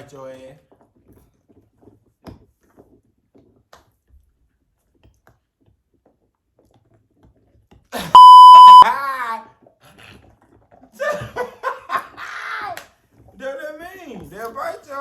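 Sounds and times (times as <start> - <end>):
high censor bleep: 8.2 - 8.8.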